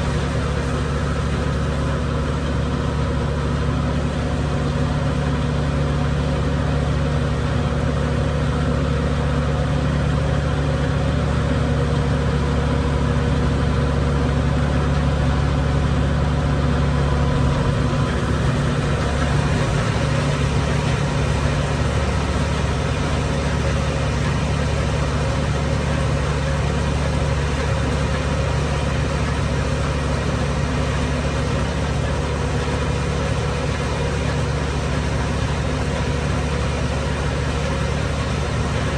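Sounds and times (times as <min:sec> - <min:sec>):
feed mill grinding corn: 0:00.0 - 0:02.8, 0:16.6 - 0:38.9
engine running: 0:00.0 - 0:38.9.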